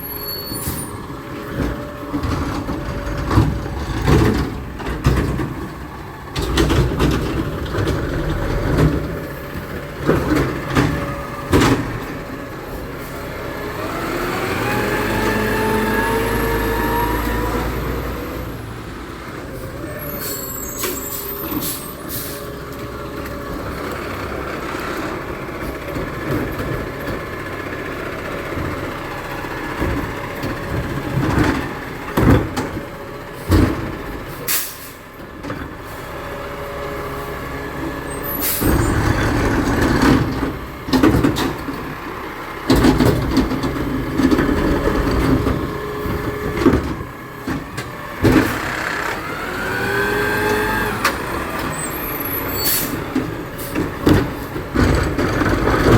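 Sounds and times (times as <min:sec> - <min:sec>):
garbage truck engine running: 0:00.0 - 0:55.9
machinery noise: 0:38.0 - 0:55.9.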